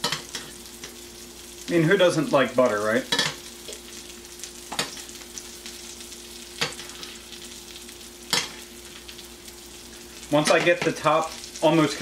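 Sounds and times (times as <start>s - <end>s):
fish sizzling in a pan: 0.0s - 12.0s
spoon basting with hot butter: 6.4s - 9.0s.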